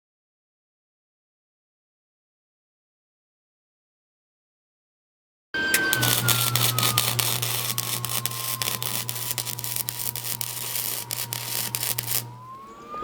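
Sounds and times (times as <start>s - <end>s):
low welder hum: 5.6s - 13.0s
welding arc crackle: 5.7s - 12.6s.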